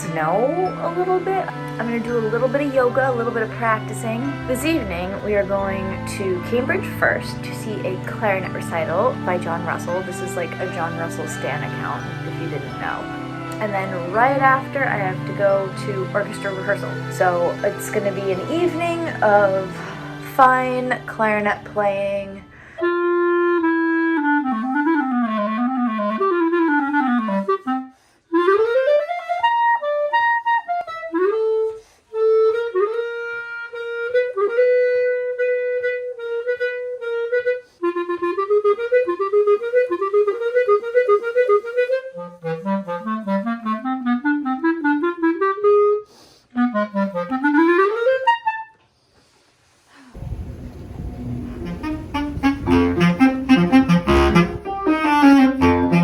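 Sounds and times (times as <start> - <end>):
solo clarinet playing: 0.0 - 48.8, 50.2 - 56.0
low rushing noise: 49.9 - 54.9.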